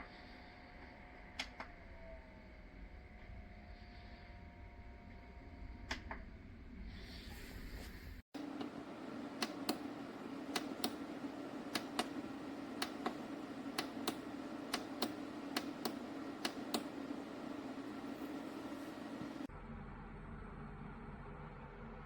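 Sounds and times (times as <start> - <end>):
dehumidifier humming: 8.3 - 19.5
sharp irregular clicks: 8.4 - 19.5.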